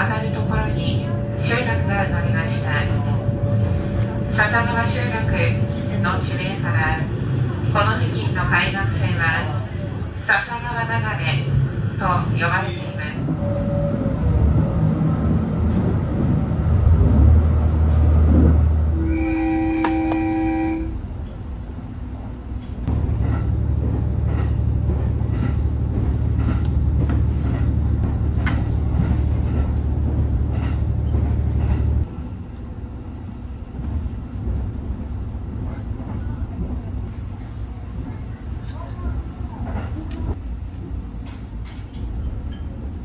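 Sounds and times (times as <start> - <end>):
train rumbling: 0.0 - 43.0
train horn: 18.9 - 21.1.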